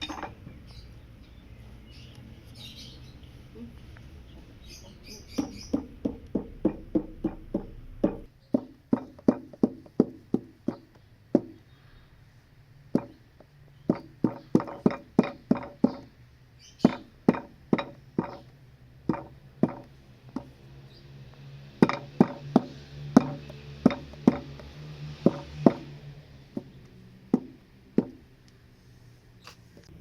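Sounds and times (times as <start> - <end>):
sharp knocks: 5.4 - 11.6, 12.9 - 16.2, 16.8 - 20.6, 21.8 - 28.2.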